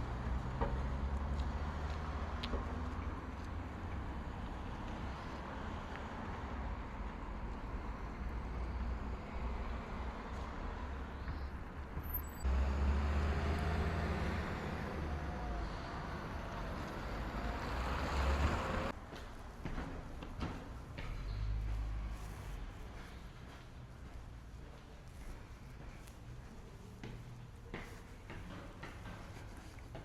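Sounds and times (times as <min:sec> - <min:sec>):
heavy vehicle rumbling past: 0:12.2 - 0:19.0.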